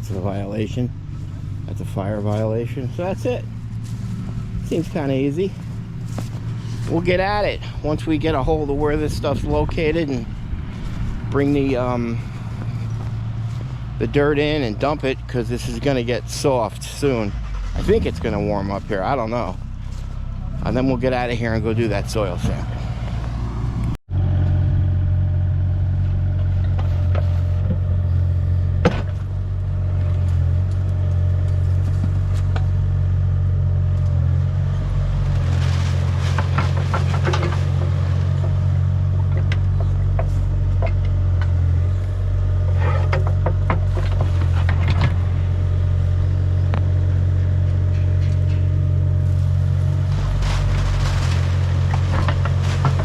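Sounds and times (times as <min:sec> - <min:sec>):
digging machine engine droning: 0:00.0 - 0:53.0
metal clanks and scrapes: 0:35.2 - 0:38.7, 0:42.6 - 0:45.4, 0:47.6 - 0:53.0.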